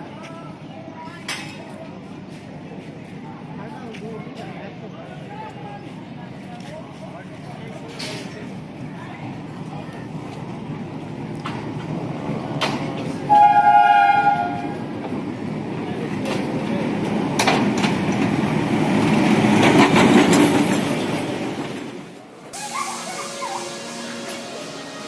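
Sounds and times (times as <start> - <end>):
train horn blast: 13.3 - 14.8, 22.6 - 25.0.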